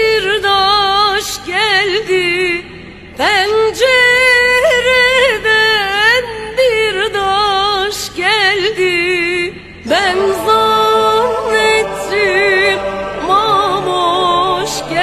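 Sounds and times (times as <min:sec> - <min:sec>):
woman singing with vibrato: 0:00.0 - 0:15.0.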